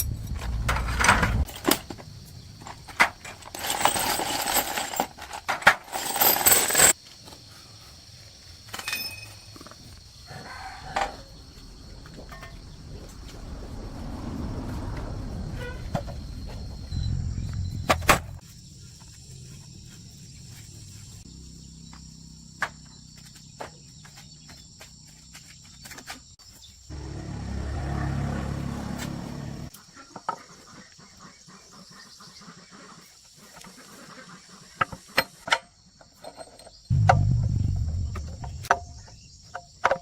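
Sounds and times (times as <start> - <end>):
low rumble: 0.0 - 1.5, 16.4 - 18.4, 36.9 - 39.4
insects trilling: 6.9 - 28.9, 29.7 - 40.0.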